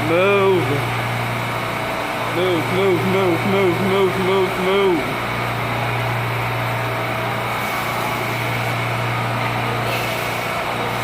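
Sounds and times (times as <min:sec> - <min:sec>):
subway car equipment hum: 0:00.0 - 0:11.0.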